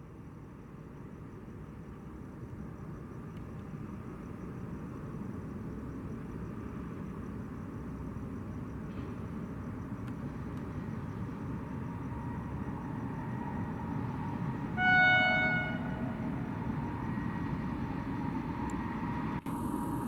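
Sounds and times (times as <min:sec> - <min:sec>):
train rumbling: 0:08.7 - 0:20.0
locomotive horn blast: 0:14.6 - 0:17.3.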